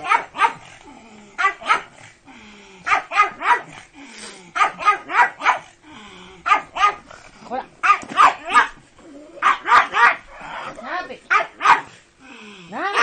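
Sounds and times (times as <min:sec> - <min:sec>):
dog barking sharply: 0:07.8 - 0:08.8, 0:09.4 - 0:10.2, 0:11.3 - 0:11.9.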